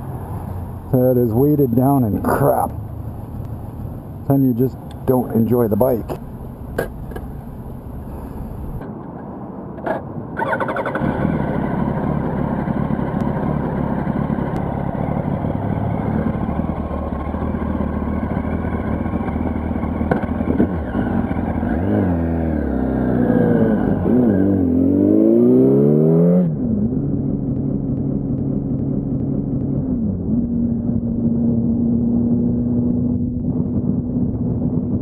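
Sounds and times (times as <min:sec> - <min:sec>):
motorcycle engine revving: 0:10.4 - 0:35.0.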